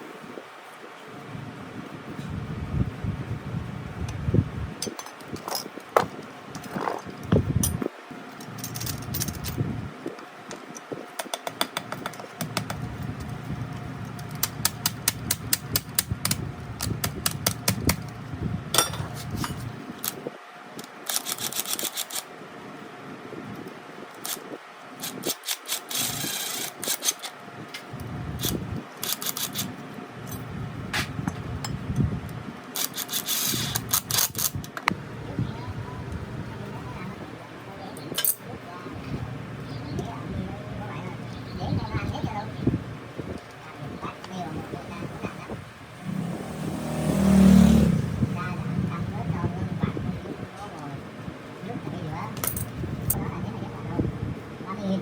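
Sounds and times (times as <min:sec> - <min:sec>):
low steady hum: 0:00.0 - 0:11.0, 0:26.0 - 0:55.0
scraping hiss: 0:32.8 - 0:34.5.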